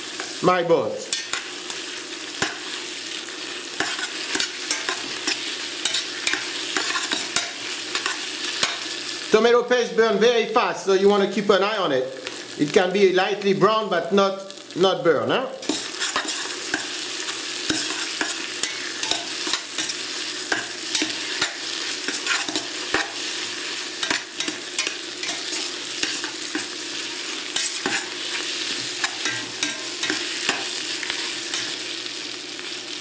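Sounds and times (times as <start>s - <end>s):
vegetables sizzling in hot oil: 0.0s - 33.0s
metal tongs clacking against pot: 3.8s - 8.8s, 17.7s - 23.2s, 24.0s - 26.7s, 29.0s - 31.8s.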